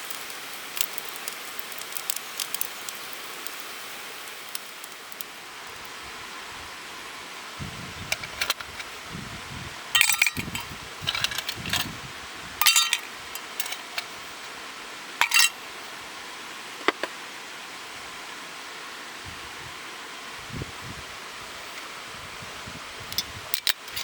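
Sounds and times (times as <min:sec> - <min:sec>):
metal pieces clinking: 0:08.1 - 0:08.8, 0:10.0 - 0:11.9, 0:12.6 - 0:14.1, 0:15.2 - 0:15.6.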